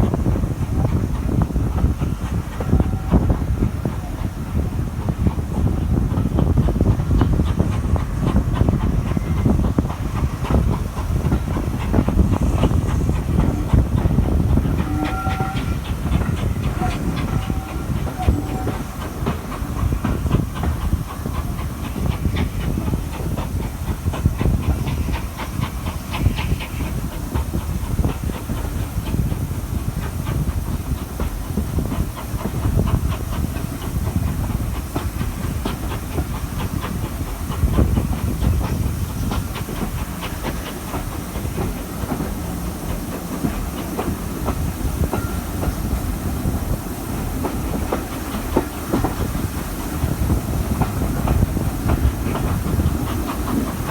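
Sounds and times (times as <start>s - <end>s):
rail clicks: 0.0s - 53.9s
steam hissing: 0.0s - 53.9s
train wheels rumbling on rail: 0.0s - 53.9s.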